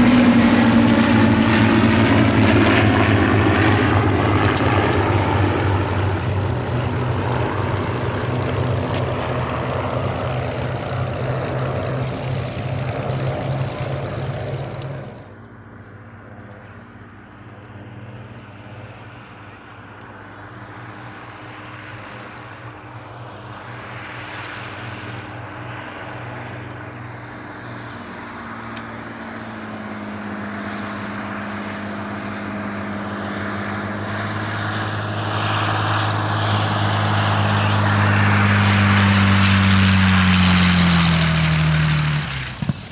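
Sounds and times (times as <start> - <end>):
propeller plane engine drone: 0.0 - 42.9.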